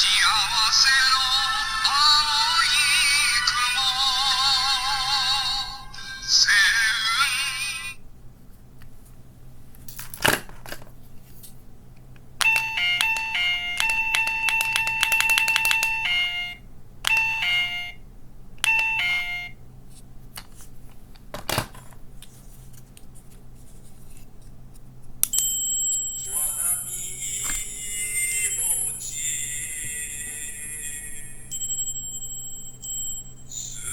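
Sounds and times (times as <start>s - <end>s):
electronic beeps: 26.2s - 33.9s.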